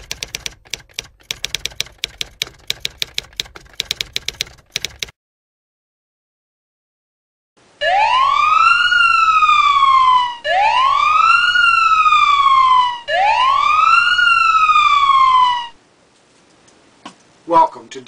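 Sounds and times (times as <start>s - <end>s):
police siren wailing: 7.8s - 15.8s.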